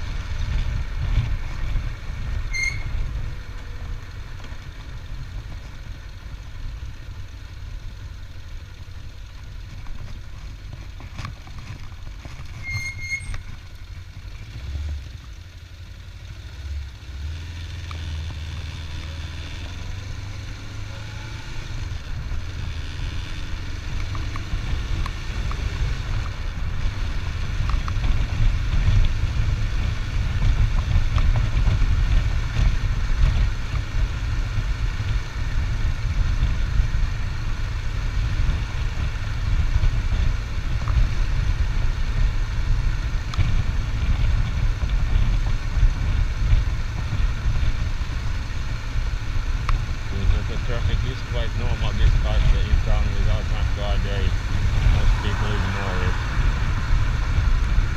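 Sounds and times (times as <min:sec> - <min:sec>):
vehicle engine and road rumble: 0:00.0 - 0:57.9
short high double beep: 0:02.5 - 0:03.0.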